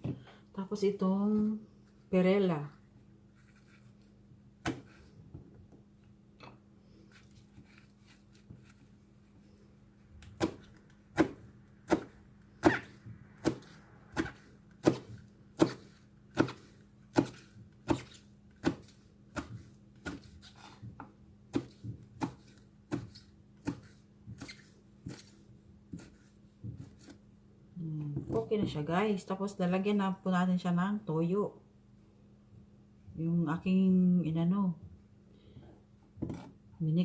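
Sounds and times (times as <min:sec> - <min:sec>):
knife chopping on wooden board: 0:04.6 - 0:05.0, 0:10.4 - 0:25.3, 0:25.9 - 0:27.2.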